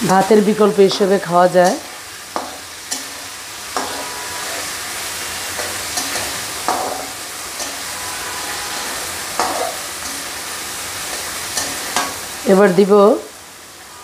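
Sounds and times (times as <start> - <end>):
chicken sizzling in hot oil: 0.0 - 14.0
spatula scraping and knocking pan: 1.6 - 12.2.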